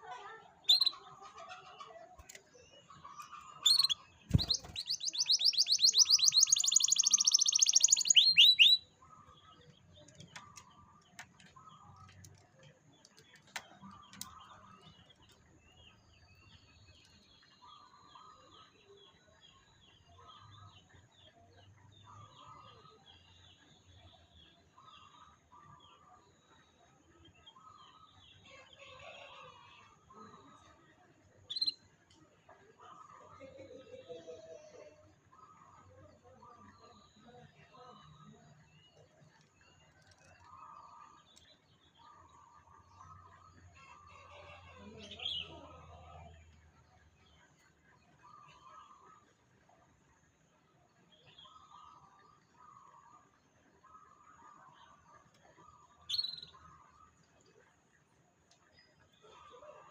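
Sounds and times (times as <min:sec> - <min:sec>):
faint bird chirps: 0:00.0 - 0:12.1, 0:13.1 - 0:31.9, 0:32.8 - 0:59.9
canary trilling: 0:00.6 - 0:01.0, 0:03.4 - 0:08.8.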